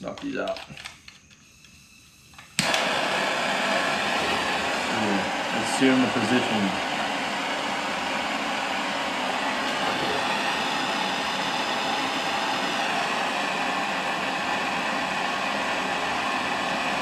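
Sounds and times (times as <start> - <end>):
heat gun hissing: 0.9 - 17.0.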